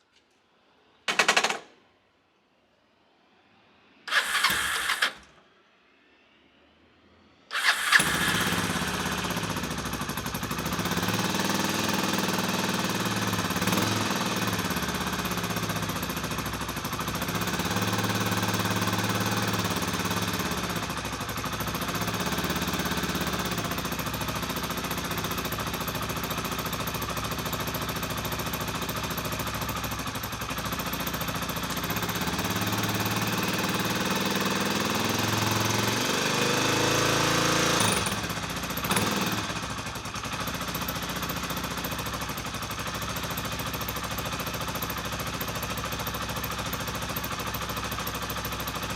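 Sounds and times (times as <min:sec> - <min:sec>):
motorcycle engine idling: 0:04.1 - 0:05.2, 0:07.5 - 0:35.5, 0:37.9 - 0:48.9.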